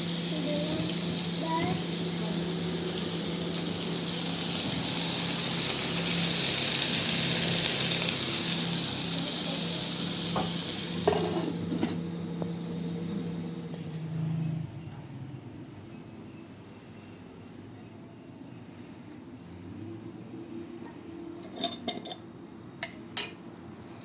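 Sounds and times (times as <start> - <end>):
food sizzling in frying: 0.0 - 14.4
steady low hum: 0.0 - 15.4.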